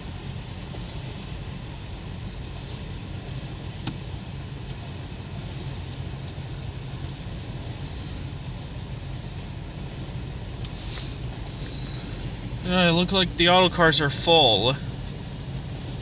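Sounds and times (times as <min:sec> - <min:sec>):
train wheels rumbling on rails: 0:06.3 - 0:13.4.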